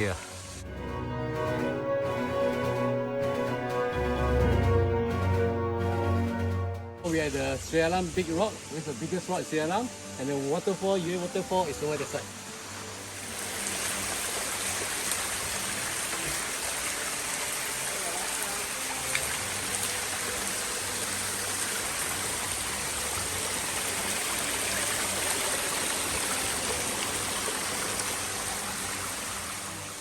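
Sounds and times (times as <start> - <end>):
waterfall rushing: 7.0 - 30.0.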